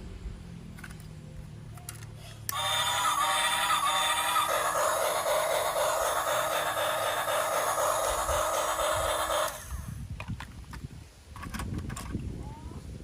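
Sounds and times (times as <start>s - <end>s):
toy train motor whirring: 1.9s - 10.0s.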